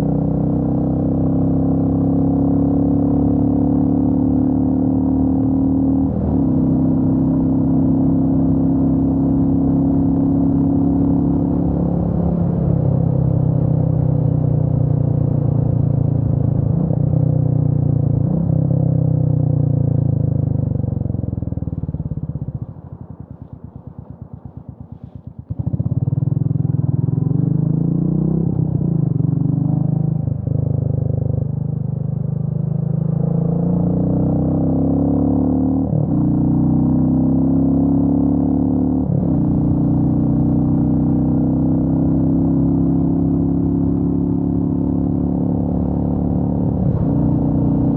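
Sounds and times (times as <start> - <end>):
motorcycle engine running: 5.4 - 47.9.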